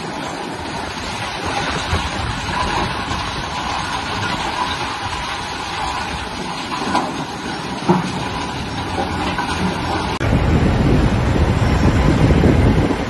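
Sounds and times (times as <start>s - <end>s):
tractor engine running: 0.0s - 13.0s
wind noise on microphone: 0.0s - 13.0s.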